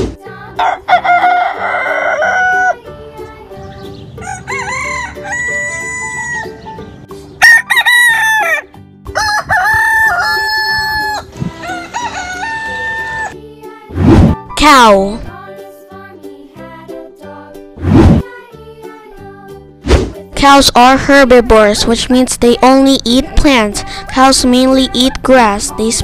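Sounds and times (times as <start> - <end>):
rooster crowing: 0.6 - 2.8, 4.2 - 6.6, 7.4 - 13.4.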